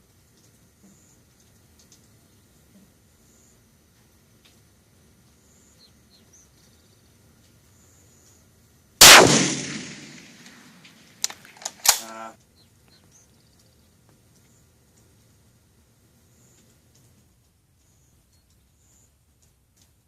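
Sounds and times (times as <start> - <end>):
rifle shot: 9.0 - 12.2
sharp metallic clicks: 9.0 - 12.2.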